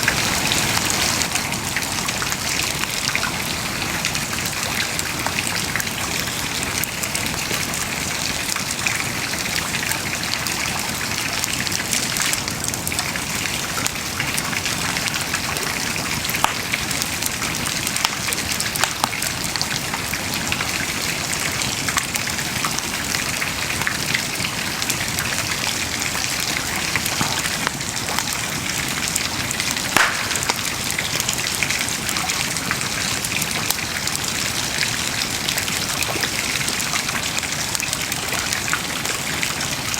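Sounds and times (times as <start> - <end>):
fire crackling and popping: 14.9 - 19.8, 24.8 - 37.1.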